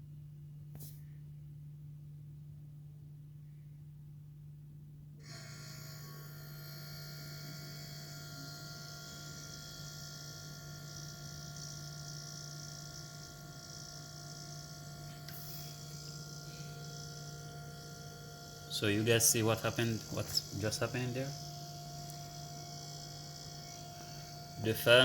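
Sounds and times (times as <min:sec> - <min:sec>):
low electrical hum: 0:00.0 - 0:25.0
refrigerator fan and compressor whirring: 0:05.2 - 0:25.0.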